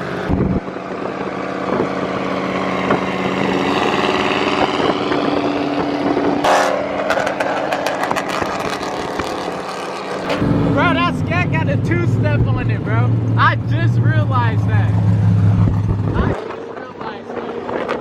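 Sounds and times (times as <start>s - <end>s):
car engine revving: 0.0s - 18.0s
engines idling: 0.0s - 18.0s
exhaust pops and crackles: 4.6s - 12.8s, 15.5s - 18.0s.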